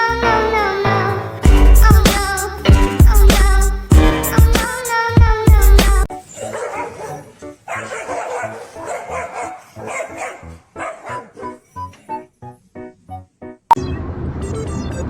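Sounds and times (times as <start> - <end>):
background music: 0.0 - 13.8
dog barking and yipping: 6.1 - 12.2.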